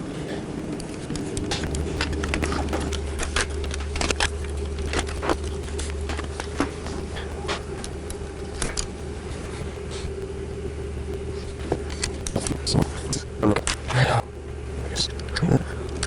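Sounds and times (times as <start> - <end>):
steady low hum: 0.0 - 16.0
plastic parts clicking and knocking: 0.7 - 10.2.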